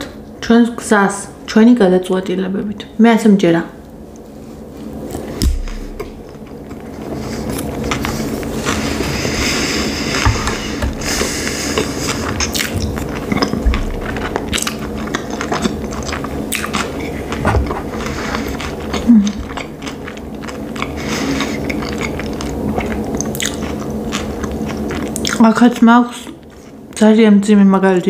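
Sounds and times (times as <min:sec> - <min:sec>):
low hum: 0:03.7 - 0:25.4
chewing food: 0:04.9 - 0:27.0.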